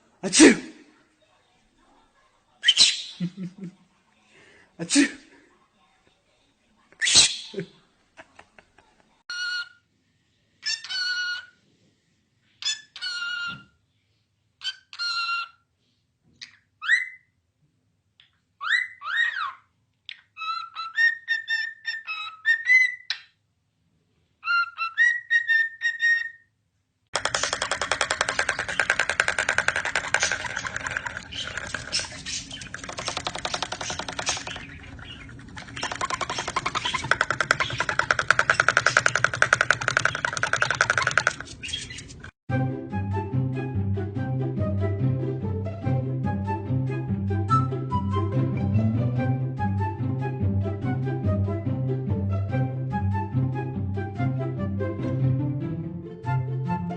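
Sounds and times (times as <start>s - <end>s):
bird giving harsh calls: 27.2s - 42.2s.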